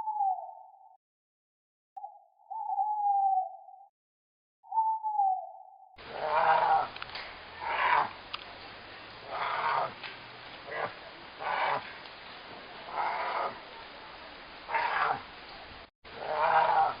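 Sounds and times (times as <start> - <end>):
animal rough calls: 6.0 - 15.4, 16.1 - 17.0.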